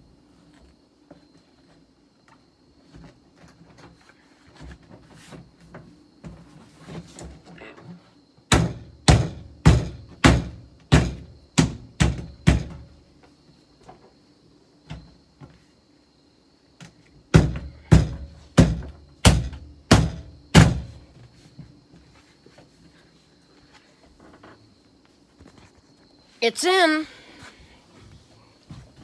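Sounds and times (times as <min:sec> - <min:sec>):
heavy thumps on car door: 0:08.5 - 0:12.8, 0:17.4 - 0:21.0.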